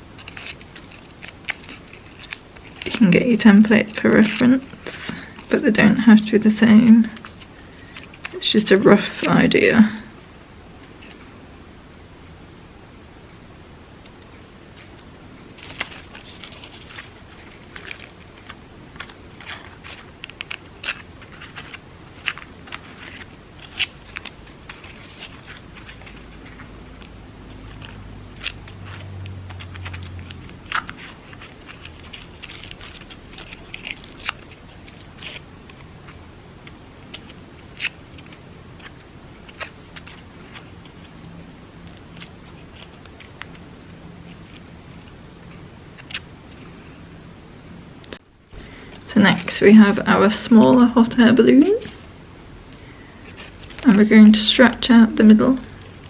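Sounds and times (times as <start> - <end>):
paper crackling and tearing: 0.0 - 6.0, 14.8 - 46.9.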